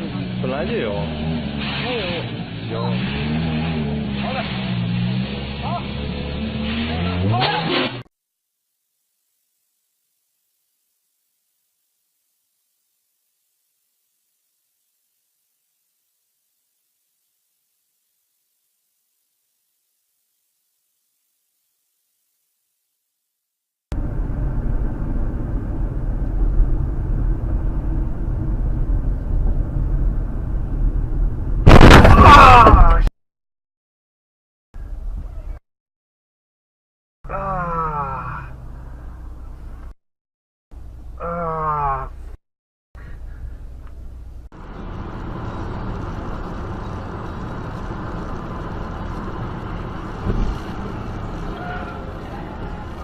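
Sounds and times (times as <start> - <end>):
car engine and road noise: 0.0 - 8.0, 23.9 - 32.0, 43.6 - 53.0.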